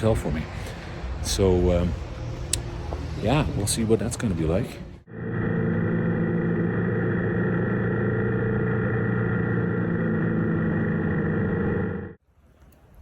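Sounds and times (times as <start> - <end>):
motorcycle engine droning: 5.0 - 12.2.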